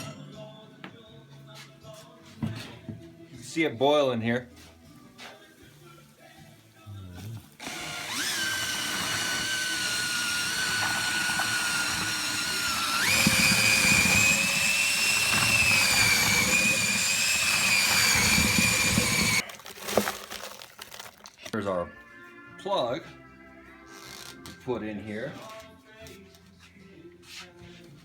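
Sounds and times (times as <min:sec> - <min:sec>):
small electric motor whining: 0:07.6 - 0:19.4.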